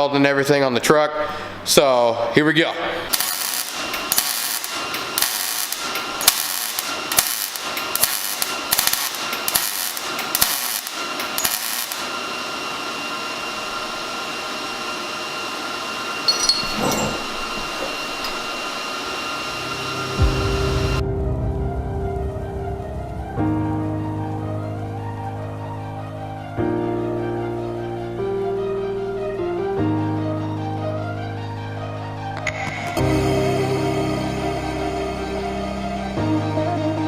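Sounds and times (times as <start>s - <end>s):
welding bursts and hiss: 3.0s - 16.2s
music: 19.6s - 37.0s.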